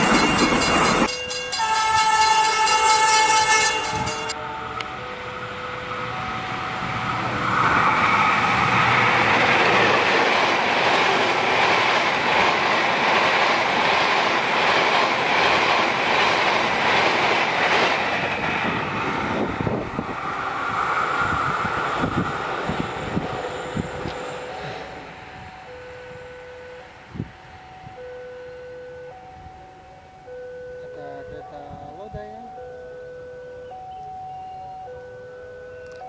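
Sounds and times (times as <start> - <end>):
train wheels rushing on rail: 0.0 - 4.9, 5.7 - 25.8.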